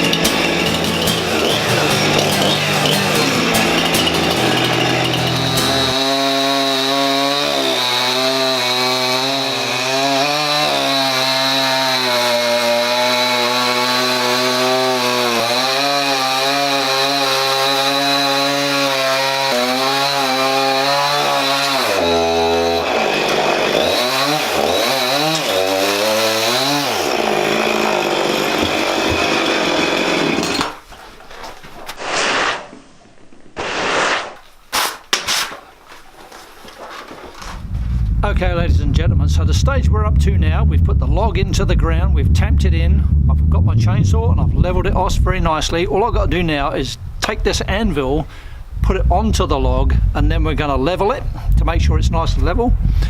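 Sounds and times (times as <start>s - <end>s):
chainsaw cutting log: 0.0s - 30.8s.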